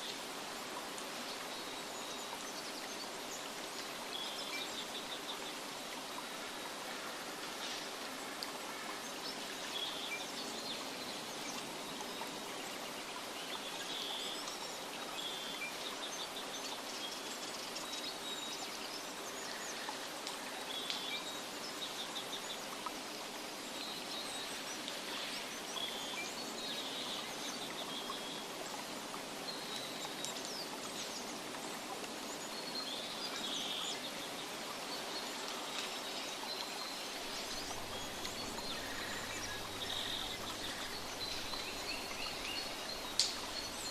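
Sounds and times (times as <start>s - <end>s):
running water hiss: 0.0s - 43.9s
small birds chirping: 9.0s - 43.9s.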